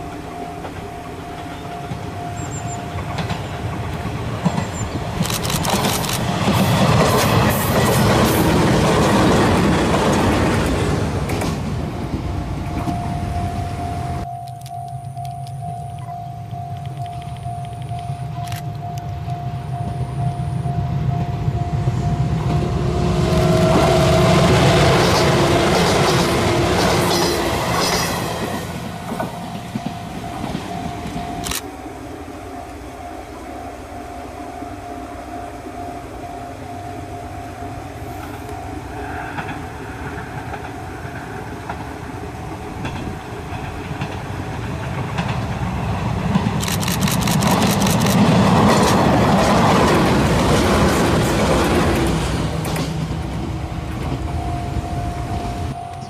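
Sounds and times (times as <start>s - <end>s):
wheels clacking over rail joints: 0.0s - 13.7s, 21.0s - 31.4s, 39.2s - 56.0s
electric train passing: 0.0s - 56.0s.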